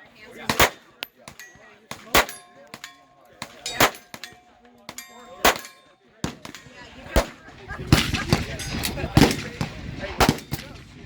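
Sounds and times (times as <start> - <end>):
faint gunshots: 0.4 - 4.4, 5.4 - 11.0
loud gunshots: 0.5 - 0.9, 1.9 - 2.4, 5.4 - 11.0.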